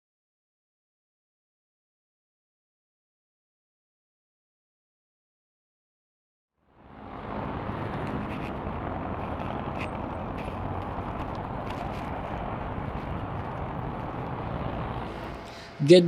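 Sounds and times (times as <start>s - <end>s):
road traffic noise: 6.6s - 16.0s.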